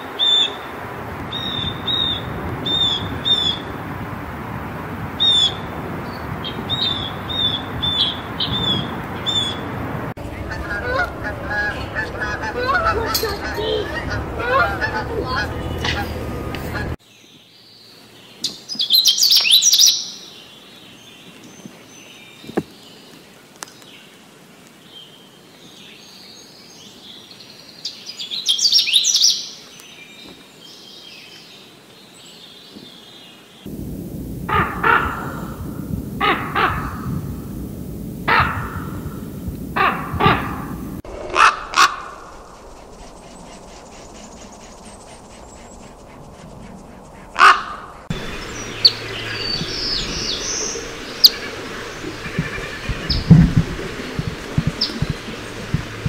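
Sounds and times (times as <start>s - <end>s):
warbler singing: 1.3s - 3.8s, 5.2s - 21.3s, 48.1s - 56.0s
raven croaking: 6.6s - 17.0s, 33.7s - 56.0s.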